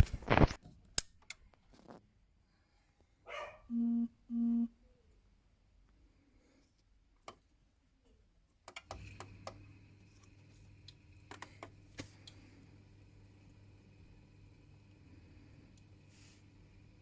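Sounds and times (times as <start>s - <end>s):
boiler low hum: 3.7s - 4.8s, 8.9s - 17.0s.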